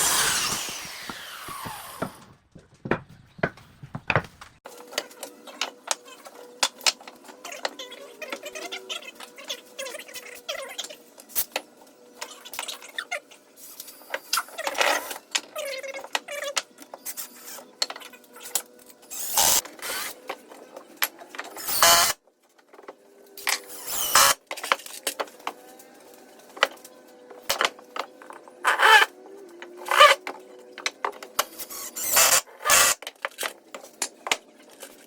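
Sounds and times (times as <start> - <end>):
wood and tools clattering: 0.0 - 4.6.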